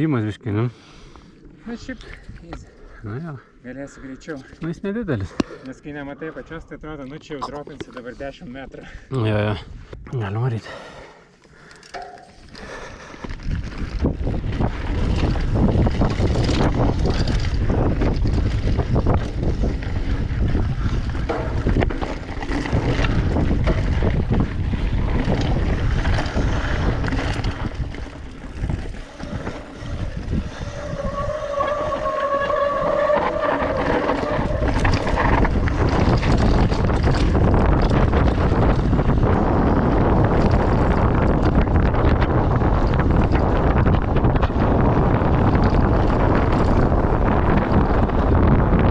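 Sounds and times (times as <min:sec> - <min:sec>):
wind rushing over microphone: 0:12.0 - 0:48.9.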